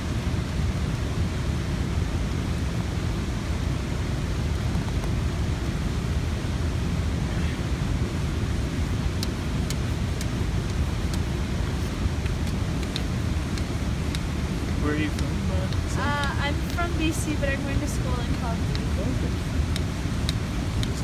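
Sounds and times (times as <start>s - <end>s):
waterfall and rapids roaring: 0.0s - 21.0s
faint small clicks: 9.0s - 14.4s.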